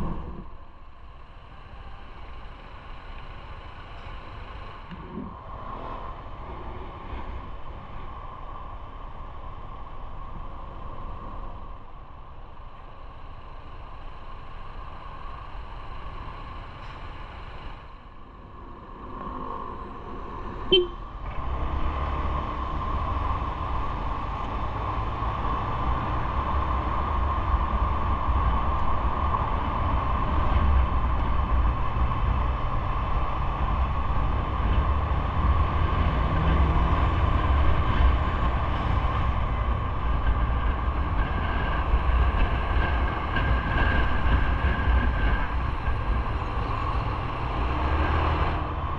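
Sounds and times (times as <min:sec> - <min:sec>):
low rumble: 0:00.0 - 0:48.9
vehicle running: 0:00.0 - 0:48.9
short sharp beep: 0:20.7 - 0:21.0.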